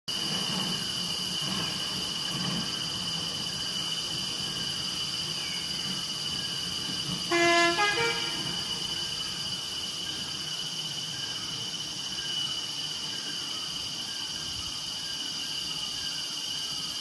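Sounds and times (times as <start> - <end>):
high-pitched insect chorus: 0.1 - 17.0
horn-like toot: 7.3 - 9.0.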